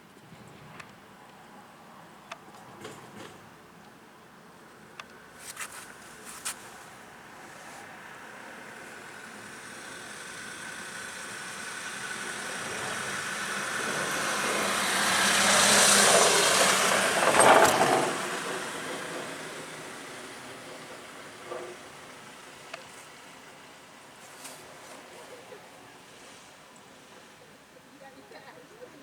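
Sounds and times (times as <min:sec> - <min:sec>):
road vehicle passing by: 0:05.4 - 0:28.0.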